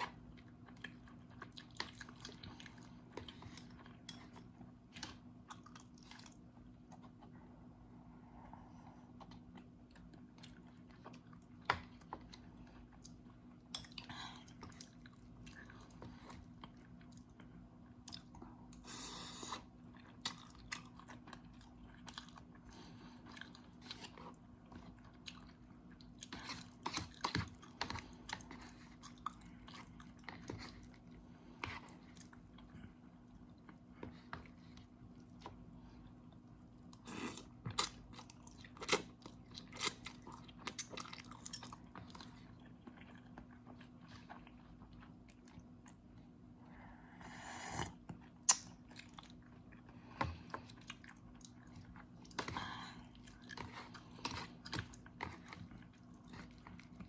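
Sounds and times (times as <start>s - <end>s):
chewing and mouth smacks: 0.0s - 7.4s, 19.6s - 46.4s, 48.0s - 57.0s
faint steady hum: 0.0s - 57.0s.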